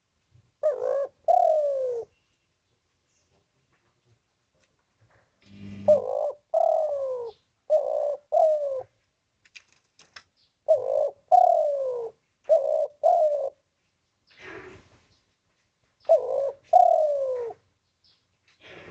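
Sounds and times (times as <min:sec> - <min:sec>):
dove cooing: 0:00.6 - 0:02.1, 0:05.8 - 0:09.0, 0:10.7 - 0:13.6, 0:16.0 - 0:17.6.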